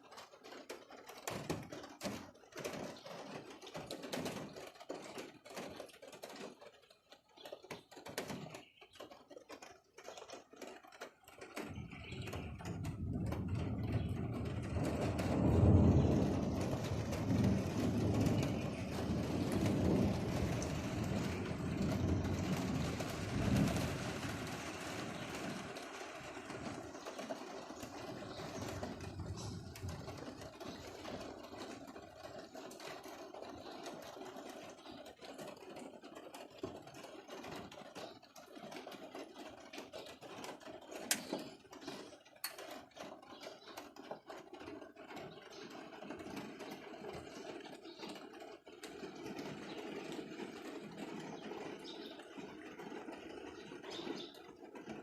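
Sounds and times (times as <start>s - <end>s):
rain pattering and dripping: 0.0s - 55.0s
low roll of thunder: 12.2s - 31.7s.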